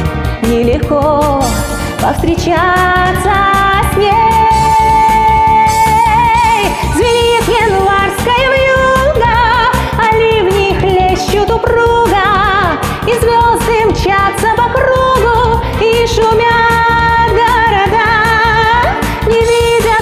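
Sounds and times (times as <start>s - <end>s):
pop backing track: 0.0s - 20.0s
woman singing with vibrato: 0.4s - 20.0s.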